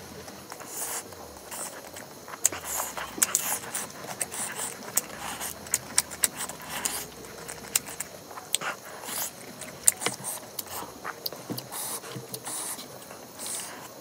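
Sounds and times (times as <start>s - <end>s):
food squishing by hand: 0.0s - 14.0s
wet chewing and lip smacks: 0.5s - 13.6s.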